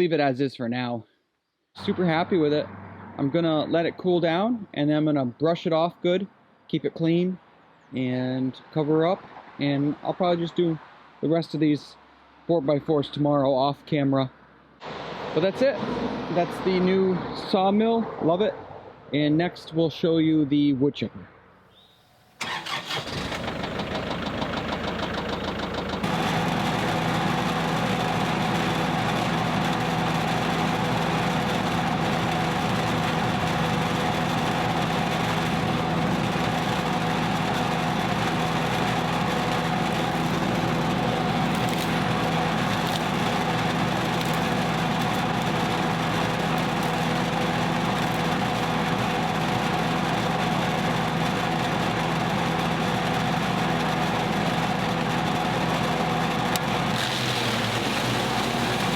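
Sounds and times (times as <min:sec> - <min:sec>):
wood chipper engine running: 0:22.4 - 0:58.9.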